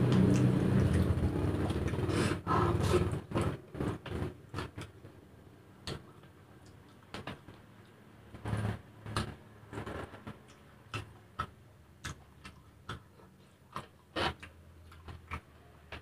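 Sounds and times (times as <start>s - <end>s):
chewing and lip-smacking: 0.0s - 3.5s, 5.8s - 16.0s
passing motor vehicle: 0.0s - 3.5s.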